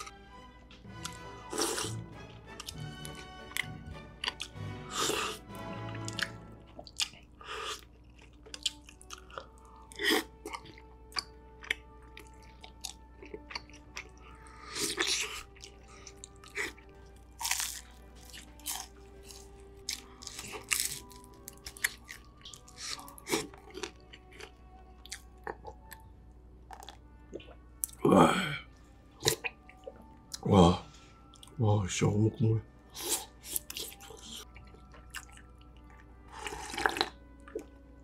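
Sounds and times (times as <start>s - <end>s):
faint background music: 0.0s - 38.0s
close chewing and smacking: 0.9s - 5.4s, 6.0s - 26.1s, 33.0s - 37.8s.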